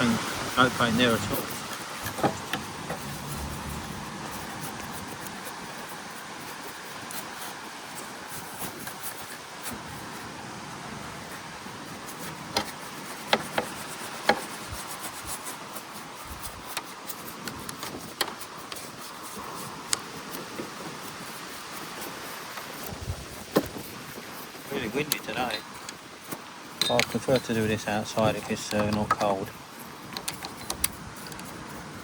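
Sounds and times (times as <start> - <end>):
wind noise on microphone: 0.0 - 32.0
rubbing and scrubbing metal: 0.2 - 7.5, 11.9 - 32.0
sharp clicks and knocks: 2.0 - 3.1, 26.8 - 27.6, 28.2 - 29.5, 30.1 - 31.5.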